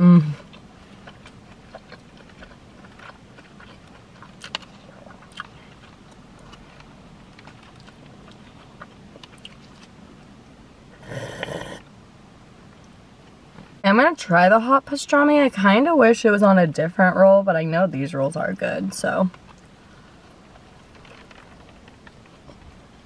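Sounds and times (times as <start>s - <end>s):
chewing and mouth noises: 0.4s - 10.0s
slurping a drink: 11.0s - 11.8s.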